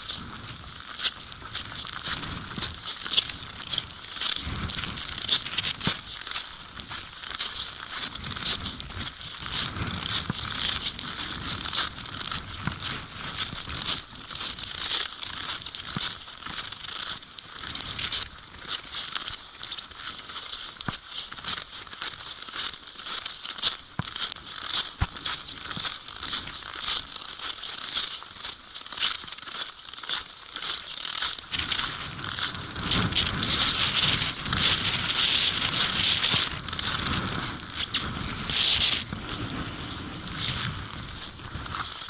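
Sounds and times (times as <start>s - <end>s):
wind-driven snow hissing: 0.0s - 14.4s, 31.3s - 42.0s.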